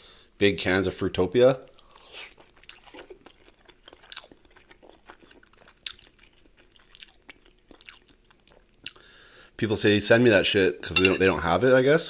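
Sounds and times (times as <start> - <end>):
person chewing food: 1.8 - 9.1.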